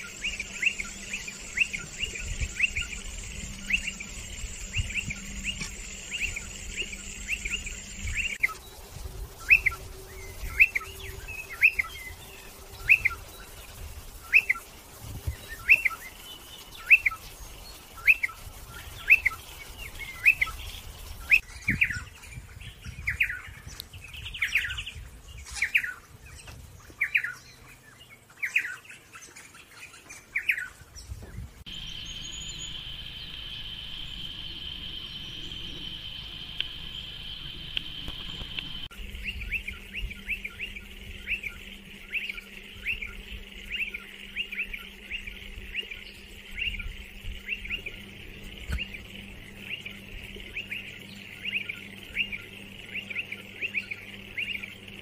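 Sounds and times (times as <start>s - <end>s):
high insect trill: 0.0s - 21.6s, 31.7s - 55.0s
bird calling sharp notes: 31.7s - 45.9s.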